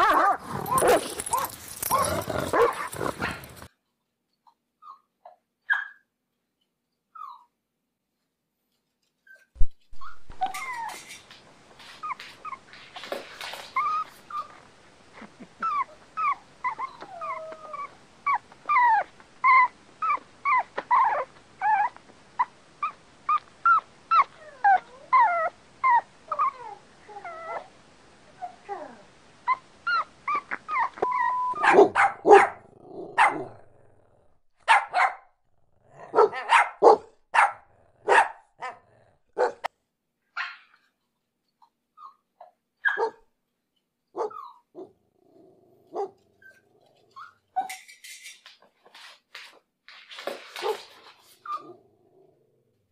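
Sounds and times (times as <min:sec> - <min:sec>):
dog barking: 0:02.5 - 0:02.9, 0:31.6 - 0:33.6, 0:34.6 - 0:35.3, 0:36.1 - 0:38.8, 0:39.4 - 0:39.7, 0:42.8 - 0:43.2, 0:44.2 - 0:44.9, 0:45.9 - 0:46.2
dog whining yips: 0:05.7 - 0:06.0, 0:07.2 - 0:07.5, 0:09.2 - 0:11.2, 0:29.5 - 0:32.5, 0:42.0 - 0:43.2, 0:44.2 - 0:44.9.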